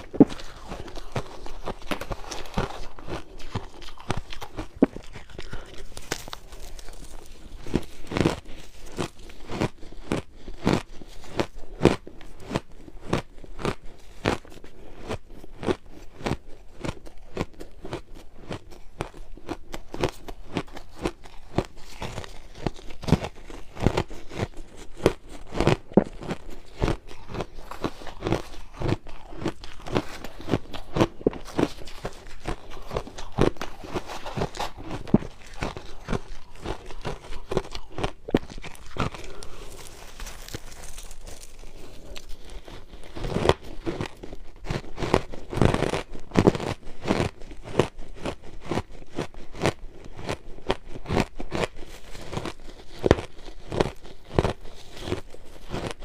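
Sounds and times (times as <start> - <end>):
ice being crunched in mouth: 0.0 - 56.0.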